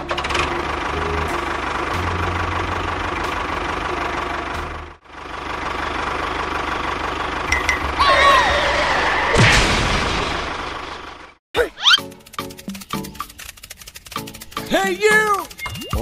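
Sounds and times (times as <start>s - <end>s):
tractor engine knocking rumble: 0.0s - 8.0s.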